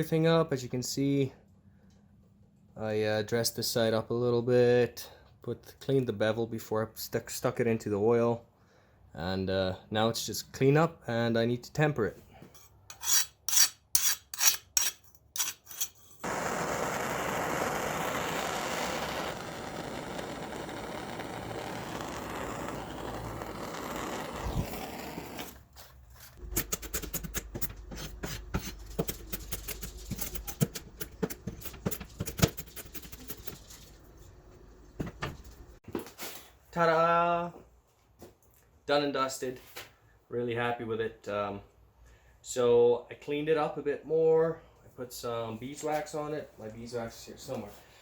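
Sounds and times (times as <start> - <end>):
file strokes on steel: 12.6 - 16.3
quick scrapes and clicks: 16.9 - 34.0.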